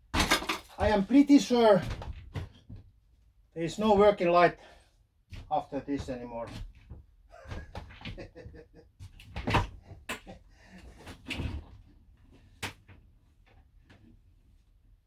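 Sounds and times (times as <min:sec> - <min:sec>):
knocks and clunks: 0:00.0 - 0:01.1.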